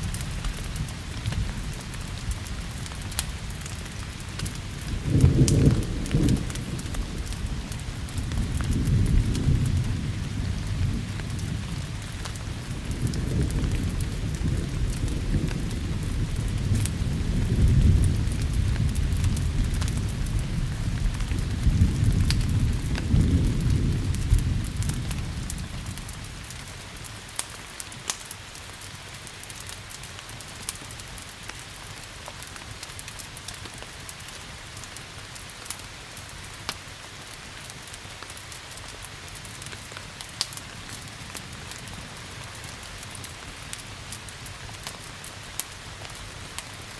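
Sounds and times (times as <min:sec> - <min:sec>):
rolling thunder: 0:00.0 - 0:26.7
steady rain: 0:00.0 - 0:46.9
wood fire crackling: 0:00.0 - 0:46.9.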